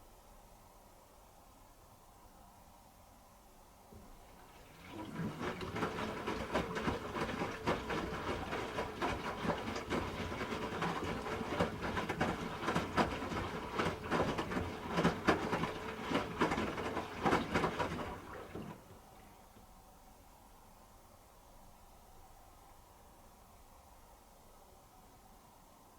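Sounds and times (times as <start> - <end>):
washing machine motor hum: 3.9 - 19.6
laundry knocking in drum: 4.8 - 18.9.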